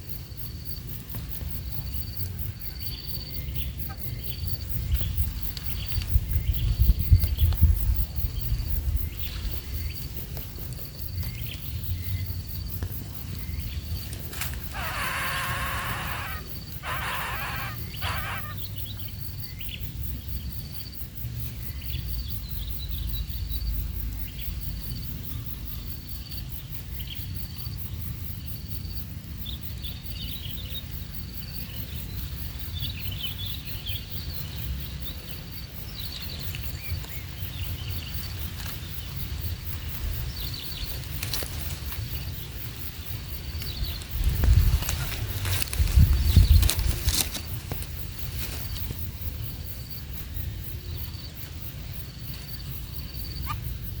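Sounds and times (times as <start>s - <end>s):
insect chirping: 0.0s - 54.0s
bird calls: 13.4s - 19.1s.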